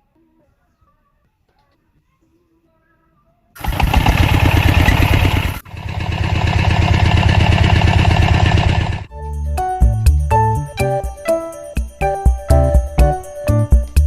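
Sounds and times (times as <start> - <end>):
small engine chugging: 3.6 - 9.1.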